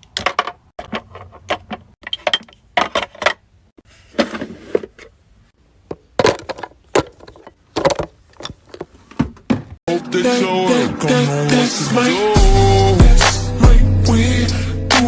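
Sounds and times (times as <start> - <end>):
glass and plastic bottles clinking: 5.9 - 8.9.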